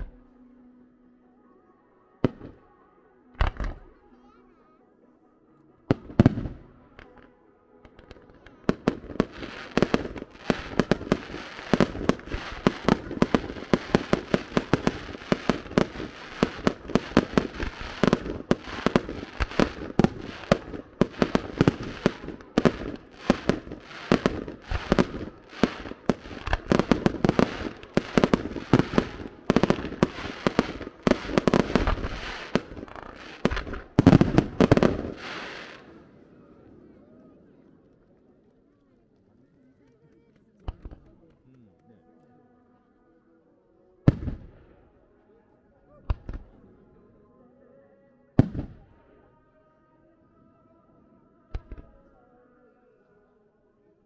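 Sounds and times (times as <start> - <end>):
fireworks bangs and crackles: 2.2 - 2.6, 3.4 - 3.9, 5.9 - 38.6, 40.4 - 41.4, 44.0 - 44.6, 46.1 - 46.6, 48.4 - 49.0, 51.5 - 52.0.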